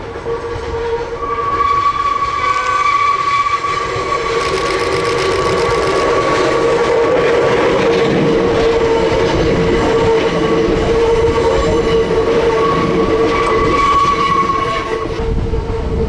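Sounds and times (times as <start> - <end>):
electric train running: 0.0 - 15.8
high whining tones: 3.2 - 7.5.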